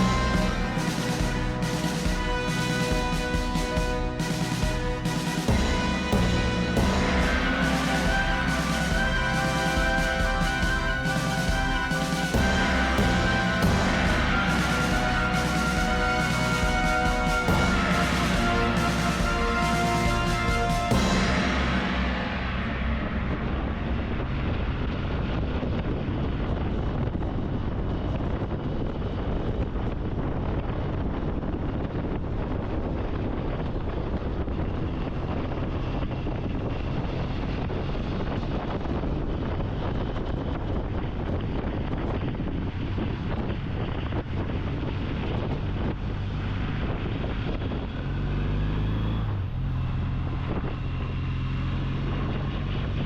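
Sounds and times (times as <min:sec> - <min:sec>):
wind buffeting microphone: 0:22.8 - 0:48.5, 0:49.2 - 0:53.0.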